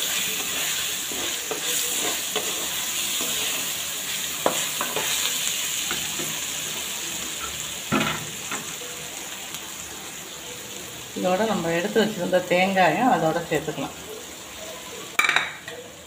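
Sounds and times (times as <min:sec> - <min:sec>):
spatula scraping a pan: 0:00.0 - 0:06.5
food sizzling in hot oil: 0:00.0 - 0:16.0.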